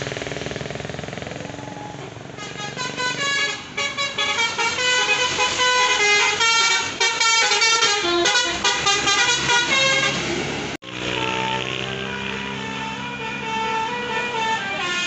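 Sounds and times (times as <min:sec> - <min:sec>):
musical bus horn notes: 0:02.4 - 0:10.4, 0:11.1 - 0:15.0.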